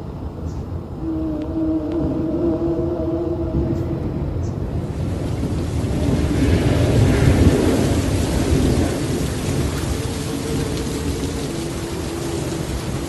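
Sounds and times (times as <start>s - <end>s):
heavy rain falling: 0.1s - 13.0s
thunder rumbling: 0.7s - 13.0s.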